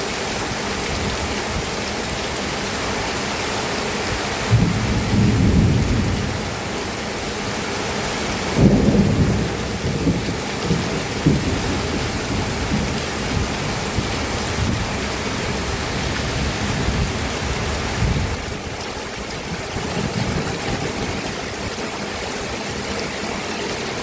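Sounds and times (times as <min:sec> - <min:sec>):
rain hissing: 0:00.0 - 0:24.0
thunder rumbling: 0:04.5 - 0:07.4, 0:08.3 - 0:21.8.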